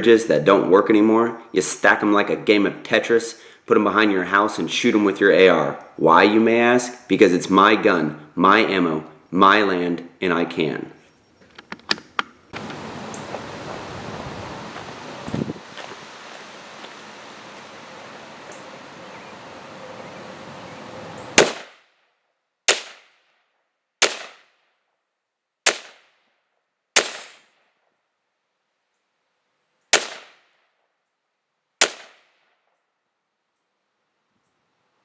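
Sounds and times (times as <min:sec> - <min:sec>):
light wind noise: 0:11.4 - 0:21.5
rifle shots: 0:21.4 - 0:21.8, 0:22.7 - 0:23.1, 0:24.0 - 0:24.5, 0:25.7 - 0:26.1, 0:27.0 - 0:27.5, 0:29.9 - 0:30.4, 0:31.8 - 0:32.3.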